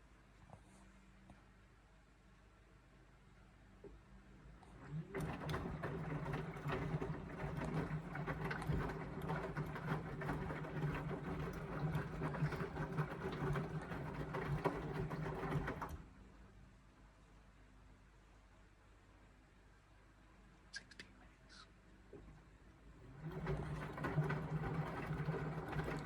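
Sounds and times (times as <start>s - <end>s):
washing machine motor hum: 4.6s - 16.4s, 22.1s - 26.0s.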